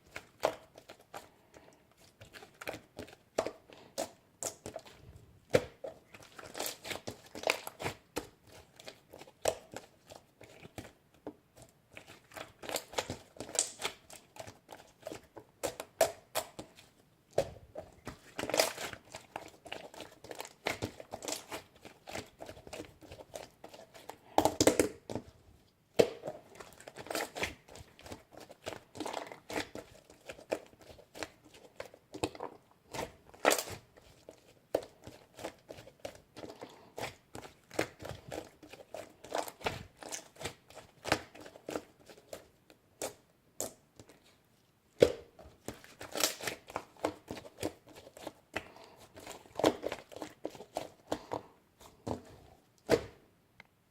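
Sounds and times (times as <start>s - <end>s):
crinkling and tearing handling: 45.5s - 53.2s.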